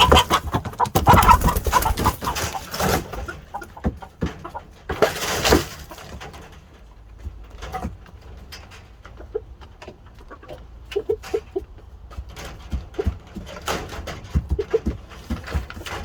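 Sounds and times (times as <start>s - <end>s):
loud rustling: 0.0s - 6.8s
chickens clucking: 0.0s - 16.0s.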